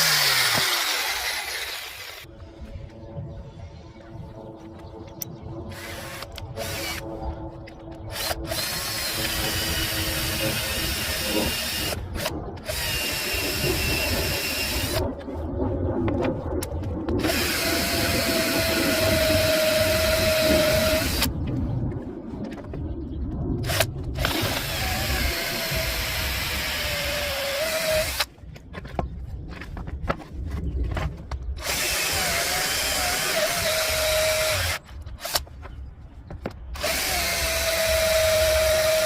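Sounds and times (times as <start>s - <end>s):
electric power tool whining: 0.0s - 2.3s, 8.1s - 15.0s, 17.2s - 21.3s, 23.7s - 28.3s, 31.6s - 35.5s, 36.8s - 39.0s.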